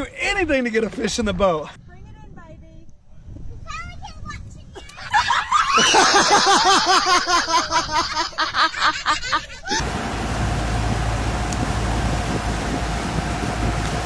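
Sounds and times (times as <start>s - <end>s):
person laughing hard: 5.1s - 9.8s
steady rumble: 9.8s - 14.0s.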